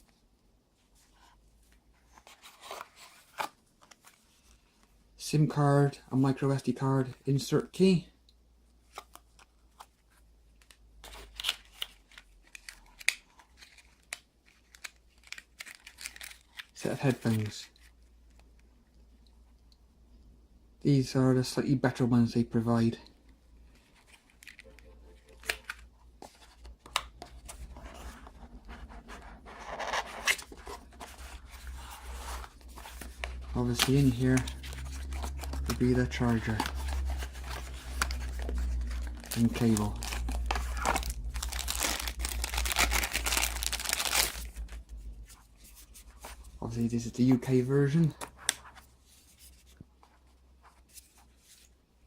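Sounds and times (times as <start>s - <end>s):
cardboard and plastic rustling: 23.6s - 46.7s.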